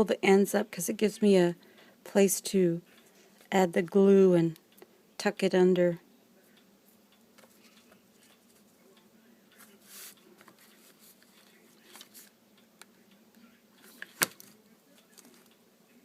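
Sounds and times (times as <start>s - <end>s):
paper rustling: 9.6s - 12.3s.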